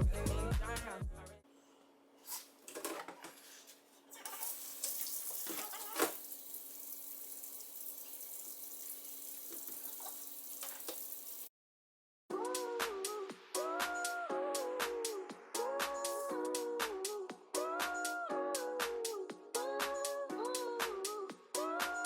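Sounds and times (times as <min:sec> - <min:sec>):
objects knocking and clattering: 0:02.6 - 0:04.5
tap water running into sink: 0:04.2 - 0:11.5.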